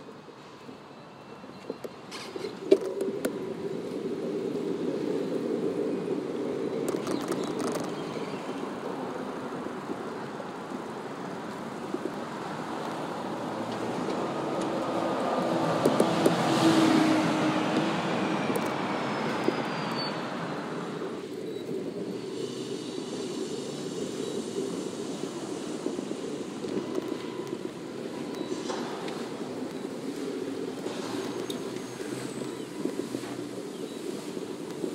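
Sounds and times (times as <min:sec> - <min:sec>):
cars driving past: 0:10.6 - 0:34.4.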